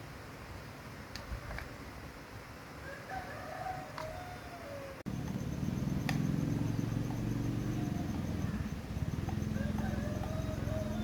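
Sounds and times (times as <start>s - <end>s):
faint bird calls: 2.8s - 11.0s
low motor hum: 5.1s - 11.0s.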